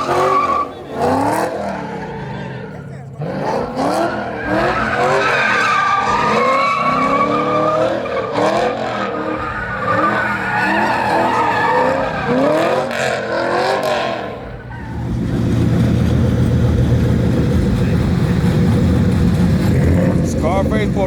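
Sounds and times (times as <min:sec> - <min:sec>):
tyres squealing: 0:00.0 - 0:02.8, 0:03.8 - 0:15.2
truck engine revving: 0:00.0 - 0:21.0.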